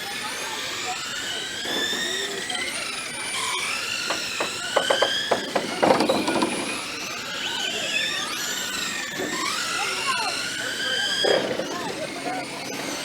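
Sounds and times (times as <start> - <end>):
rc truck motors whining: 0.0 - 13.0
sharp knocks and clatter: 4.0 - 6.9.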